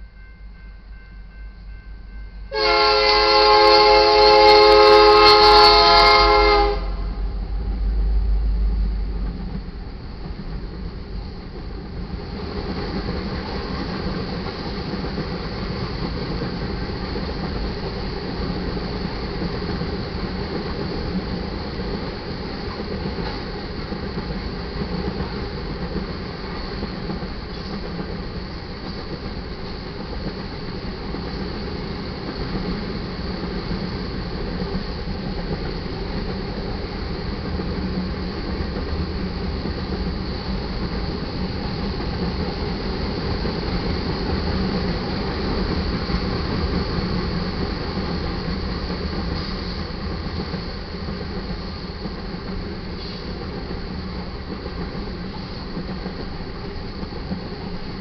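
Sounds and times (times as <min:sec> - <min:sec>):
freight train wheels rumbling on rails: 0:00.0 - 0:58.0.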